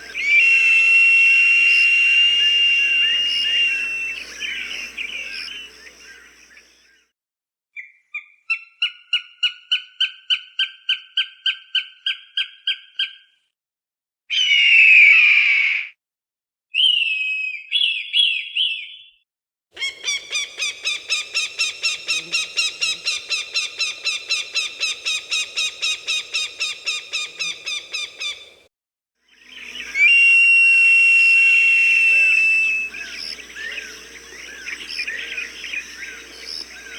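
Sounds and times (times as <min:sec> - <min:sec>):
falcon calling: 0:00.0 - 0:06.7, 0:19.8 - 0:28.6, 0:29.5 - 0:36.9.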